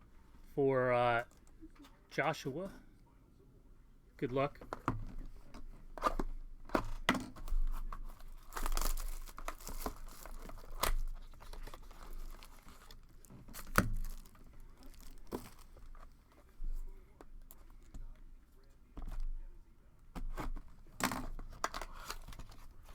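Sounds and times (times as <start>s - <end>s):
packaging tearing and crinkling: 6.0s - 16.3s, 20.3s - 22.9s.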